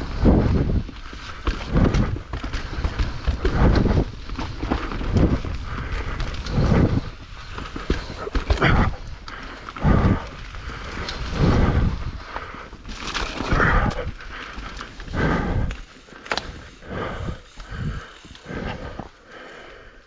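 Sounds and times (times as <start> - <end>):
bike rattling: 0.0 - 20.0
person breathing hard: 4.7 - 20.0
tyres rumbling: 11.6 - 20.0.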